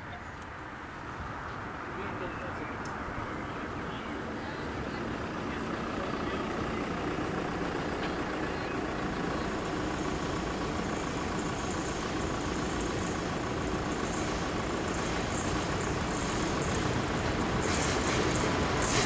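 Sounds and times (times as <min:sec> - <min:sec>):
heavy vehicle engine running: 0:00.4 - 0:19.0
fast high-pitched ticking: 0:09.2 - 0:19.0.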